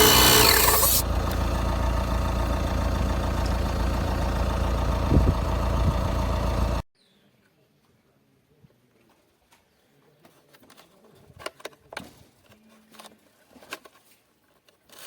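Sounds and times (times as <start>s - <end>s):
air compressor humming: 0.0s - 6.0s.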